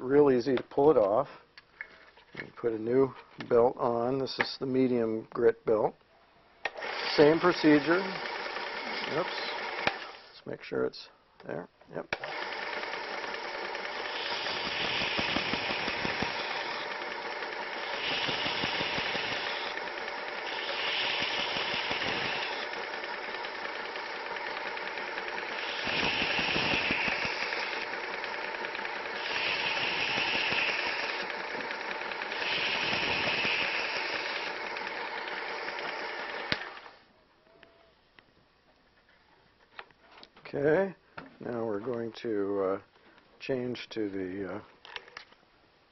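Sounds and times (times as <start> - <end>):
belt sharpener motor running: 6.6 - 10.3, 12.1 - 37.1.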